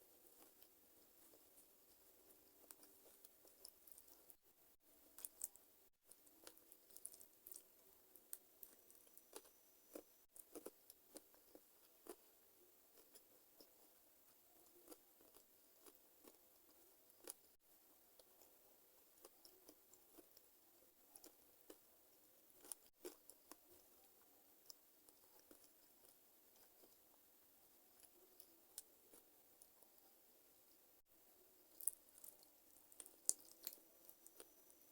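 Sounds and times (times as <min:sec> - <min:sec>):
chewing and crunching: 0:01.3 - 0:04.4, 0:05.0 - 0:12.3, 0:14.5 - 0:17.6, 0:22.5 - 0:27.1, 0:31.7 - 0:34.9.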